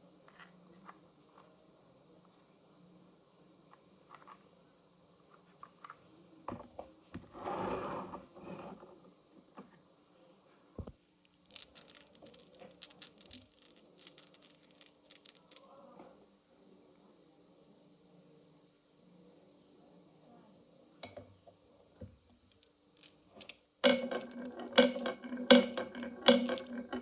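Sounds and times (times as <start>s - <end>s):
marbles rolling: 11.4s - 15.8s, 22.4s - 27.0s
marbles clicking: 11.5s - 15.8s, 22.4s - 27.0s
marbles knocking on wood: 11.5s - 15.8s, 22.5s - 27.0s.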